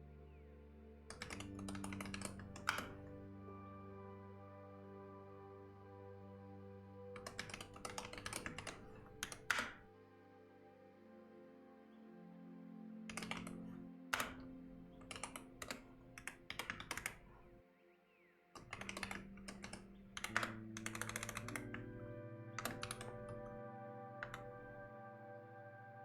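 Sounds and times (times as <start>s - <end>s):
soft background music: 0.0s - 26.0s
computer keyboard typing: 1.1s - 3.2s, 7.2s - 9.9s, 13.1s - 17.6s, 18.6s - 24.9s.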